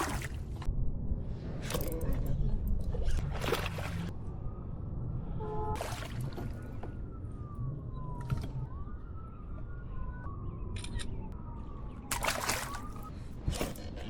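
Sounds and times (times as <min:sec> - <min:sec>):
siren wailing: 0:04.1 - 0:13.5.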